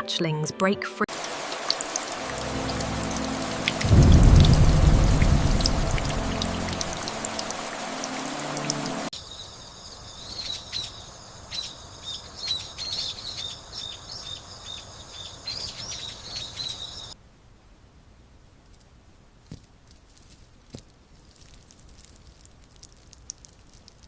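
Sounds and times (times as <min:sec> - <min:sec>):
rain-like noise: 0:01.1 - 0:24.0
low rumble: 0:02.2 - 0:07.8.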